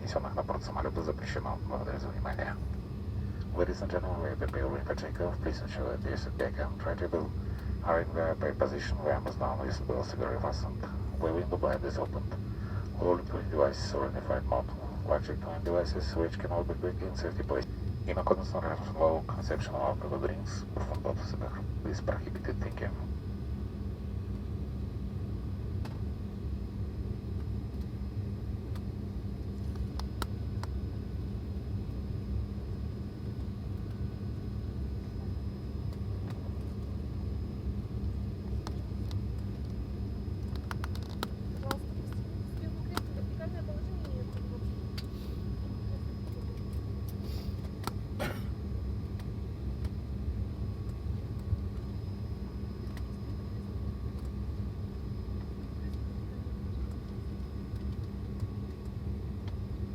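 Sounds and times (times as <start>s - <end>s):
airliner cabin drone: 0.0s - 59.9s
faint steady whine: 0.0s - 59.9s.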